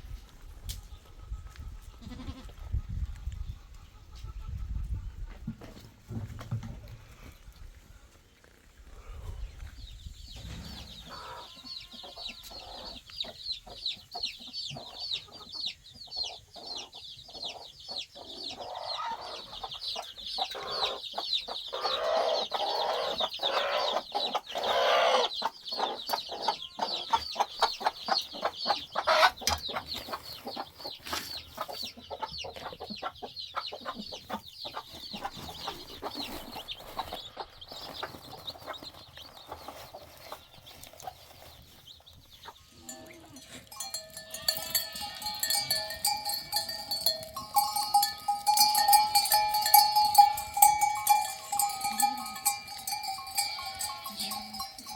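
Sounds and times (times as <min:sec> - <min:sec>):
chickens clucking: 0:00.1 - 0:07.8, 0:08.8 - 0:54.9
high cheeping: 0:43.7 - 0:54.9.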